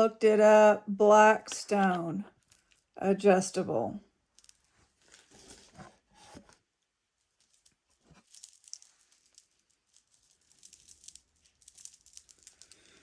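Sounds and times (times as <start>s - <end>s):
jewelry clicking and rustling: 2.3s - 3.0s, 4.2s - 5.9s, 7.2s - 13.0s.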